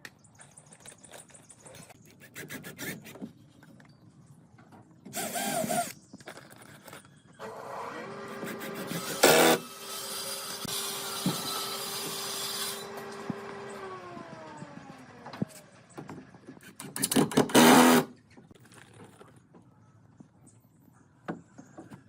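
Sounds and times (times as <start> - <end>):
power tool whining and cutting: 5.2 - 6.0, 7.4 - 16.1, 17.5 - 18.1.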